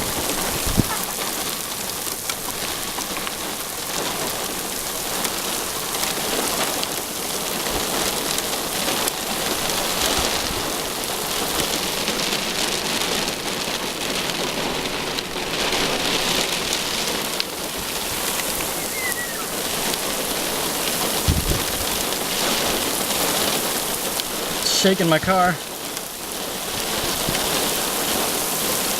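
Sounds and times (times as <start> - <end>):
heavy rain pelting a car: 0.0 - 28.9.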